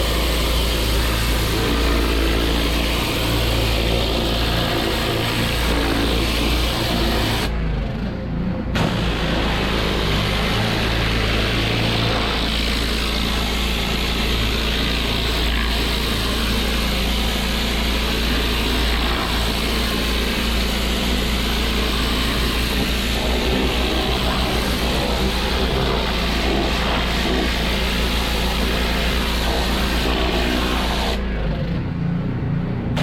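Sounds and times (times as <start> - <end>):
pressure washer engine running: 0.0 - 7.6, 8.7 - 32.0
water spray hissing: 9.0 - 31.2.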